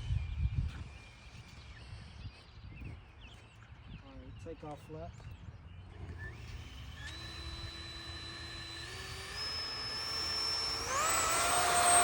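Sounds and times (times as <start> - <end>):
electric ducted fans whining: 5.7 - 12.0.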